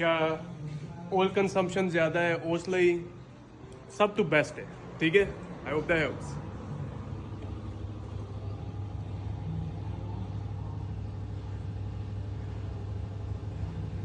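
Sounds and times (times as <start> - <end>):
car engine idling: 5.9 - 14.0.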